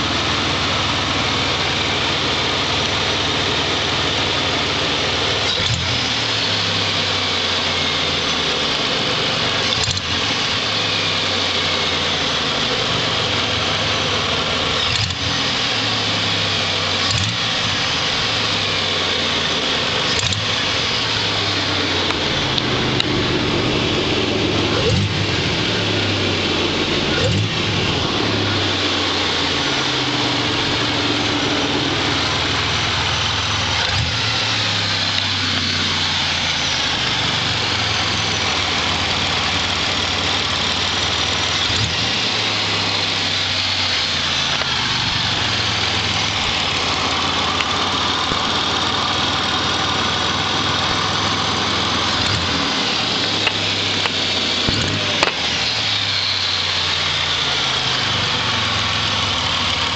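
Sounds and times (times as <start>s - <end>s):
car engine revving: 0.0s - 59.9s
sharp engine ticks: 20.0s - 21.4s.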